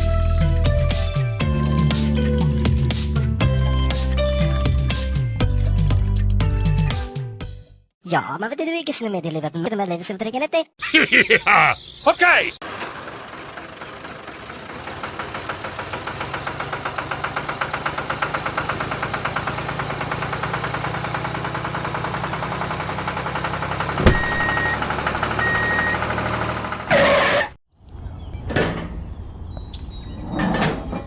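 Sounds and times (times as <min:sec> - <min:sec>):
engine running with rapid pulse: 0:12.6 - 0:27.6.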